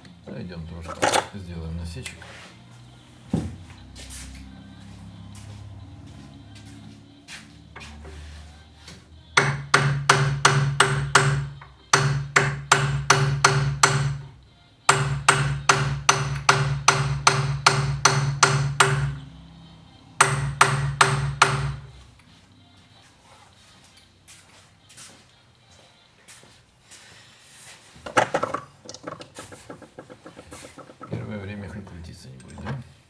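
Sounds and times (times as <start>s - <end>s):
hammer striking metal punch: 9.4s - 19.4s, 20.2s - 22.0s.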